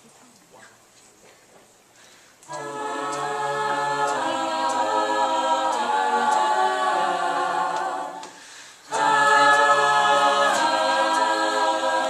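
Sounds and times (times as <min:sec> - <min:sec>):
vocal group singing chords: 0:02.4 - 0:12.0.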